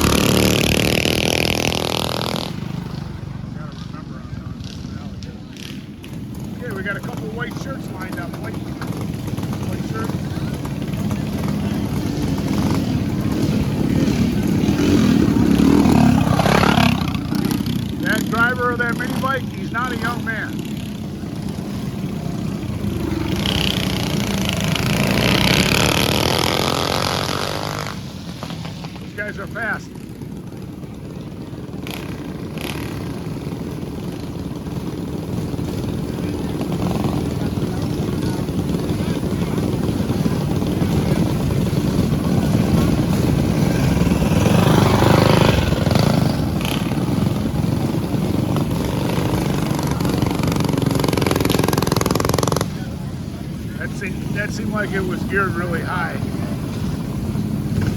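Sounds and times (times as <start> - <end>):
mini bike engines racing: 0.0 - 57.9.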